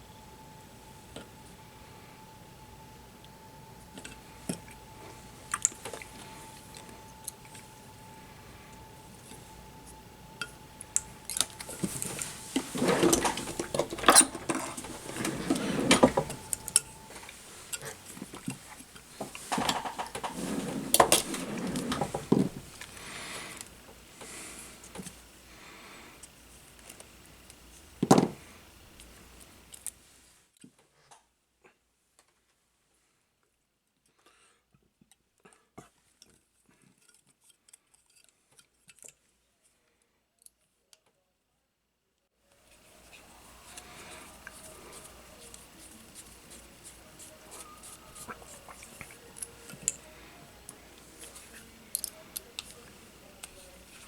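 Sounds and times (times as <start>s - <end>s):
tools clattering on workbench: 11.4s - 16.9s, 19.2s - 22.6s.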